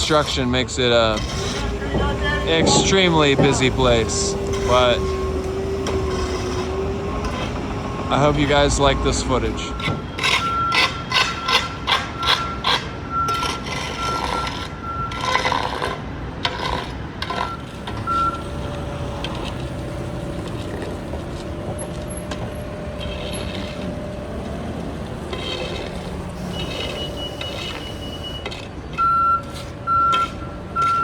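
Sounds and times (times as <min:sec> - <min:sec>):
street traffic: 0:00.0 - 0:31.0
truck engine drone: 0:00.0 - 0:31.0
sharp knocks: 0:01.2 - 0:07.8.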